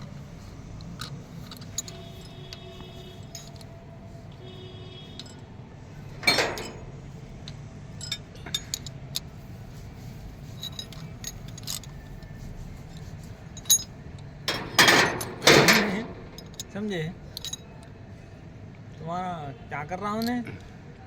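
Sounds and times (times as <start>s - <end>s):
metal tools clinking: 0.8s - 3.8s, 5.0s - 5.5s, 6.1s - 9.4s, 10.4s - 17.8s
loud metal clatter: 6.2s - 7.0s, 14.5s - 16.8s.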